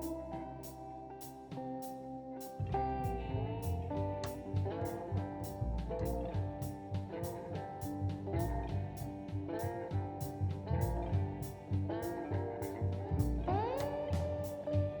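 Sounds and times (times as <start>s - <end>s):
electric guitar melody: 0.0s - 15.0s
steady drum beat: 3.0s - 15.0s.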